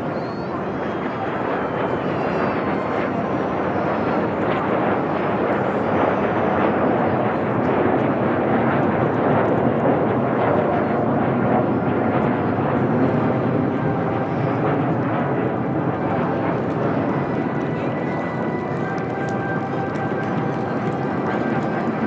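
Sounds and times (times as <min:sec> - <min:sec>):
jet engines rushing: 0:11.0 - 0:22.0.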